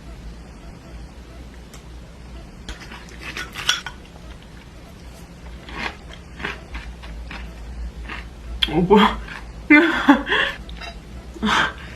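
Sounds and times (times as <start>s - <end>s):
dishes and utensils clinking: 2.7s - 4.1s, 10.8s - 11.0s.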